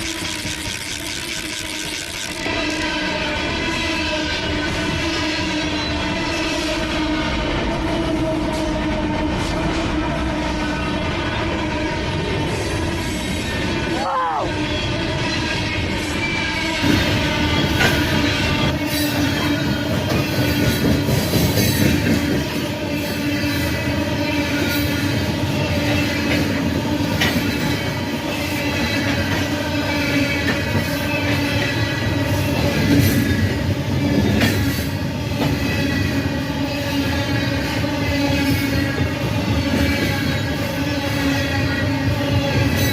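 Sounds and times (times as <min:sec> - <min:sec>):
train wheels squealing: 0:00.0 - 0:07.7, 0:10.6 - 0:42.9
train rumbling on rails: 0:00.0 - 0:42.9
rail clicks: 0:15.6 - 0:42.9.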